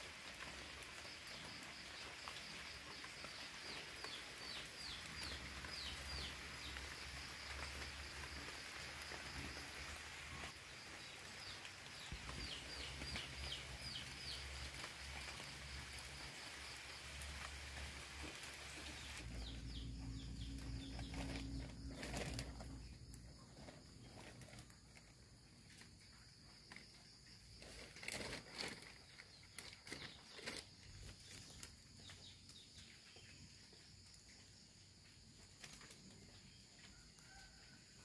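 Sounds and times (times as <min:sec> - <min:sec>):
bird chirping: 0:18.9 - 0:24.5.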